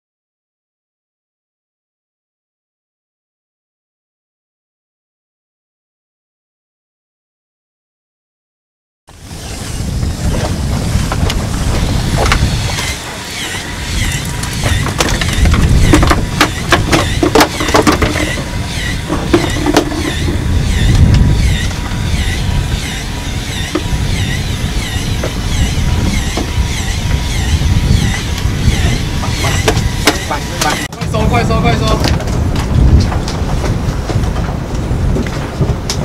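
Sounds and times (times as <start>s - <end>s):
boat engine rumble: 9.1s - 36.0s
wind buffeting microphone: 9.1s - 36.0s.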